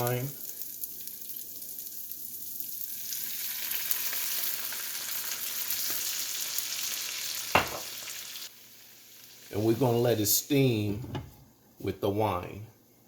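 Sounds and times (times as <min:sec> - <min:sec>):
food sizzling in a pan: 0:00.0 - 0:10.1.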